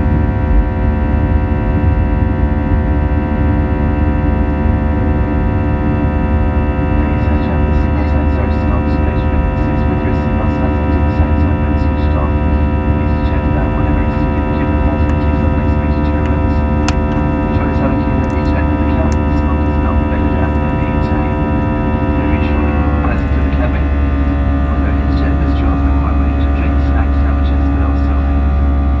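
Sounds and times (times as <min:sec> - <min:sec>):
jet engines rumbling and whining: 0:00.0 - 0:29.0.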